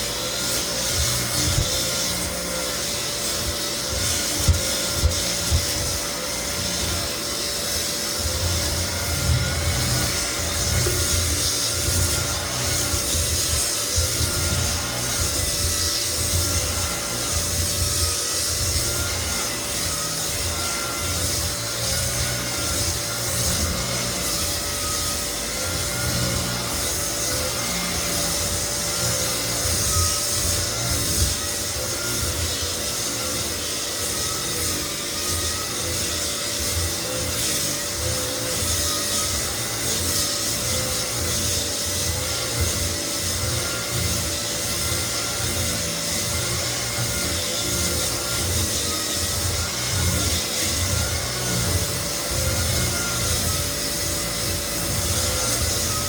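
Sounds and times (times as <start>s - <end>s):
belt floor sander scraping wood: 0.0s - 56.0s
sander motor hum: 0.0s - 56.0s.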